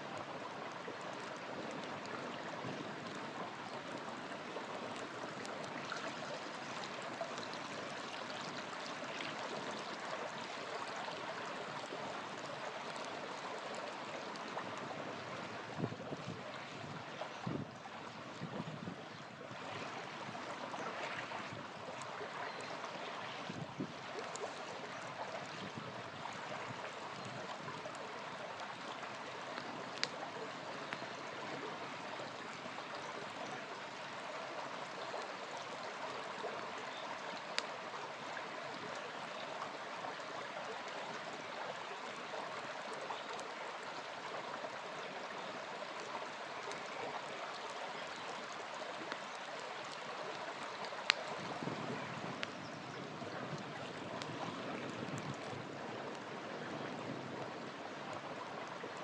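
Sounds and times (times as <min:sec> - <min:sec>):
river flowing: 0:00.0 - 0:59.0
campfire popping: 0:21.9 - 0:31.8, 0:49.0 - 0:52.6.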